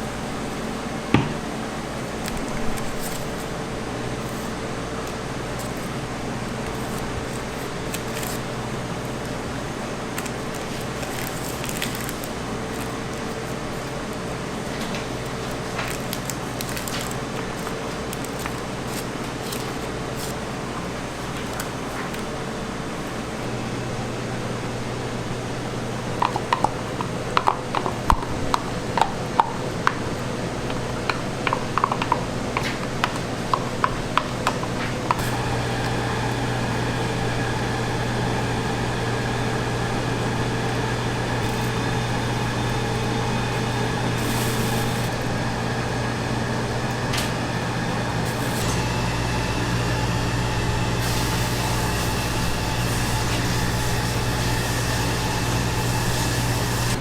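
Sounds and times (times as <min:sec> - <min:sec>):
steady electrical hum: 0:00.0 - 0:57.0
kitchen appliance motor droning: 0:35.1 - 0:57.0.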